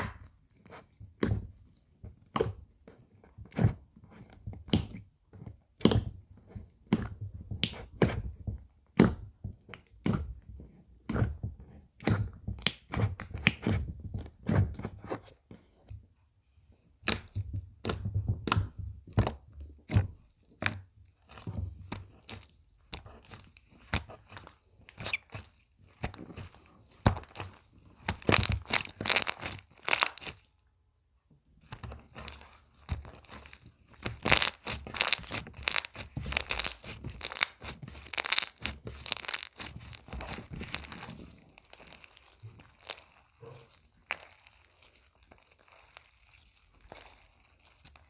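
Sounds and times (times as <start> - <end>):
slime crackling and popping: 26.4 - 30.4, 31.8 - 48.0.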